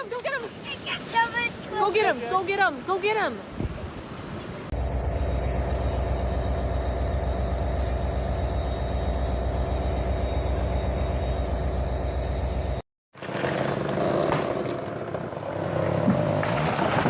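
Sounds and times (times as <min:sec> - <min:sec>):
engine droning with faint whine: 0:04.8 - 0:12.8.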